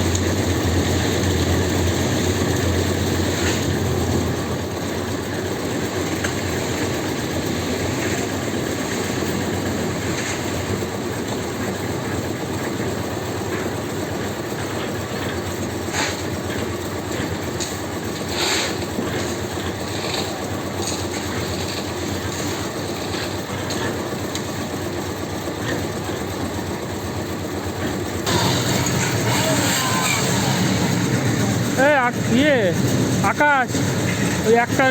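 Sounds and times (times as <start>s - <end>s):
machine running with low hum: 16.5s - 34.9s.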